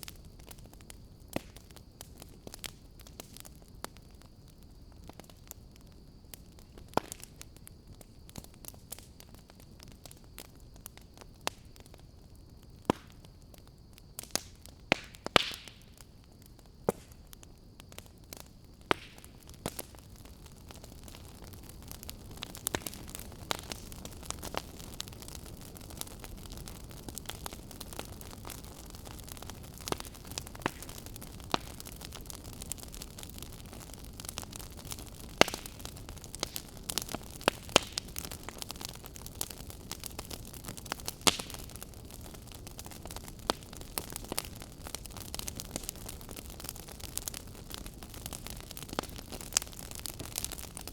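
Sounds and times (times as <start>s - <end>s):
fire crackling and popping: 0.0s - 50.9s
low hiss of fire: 0.0s - 50.9s.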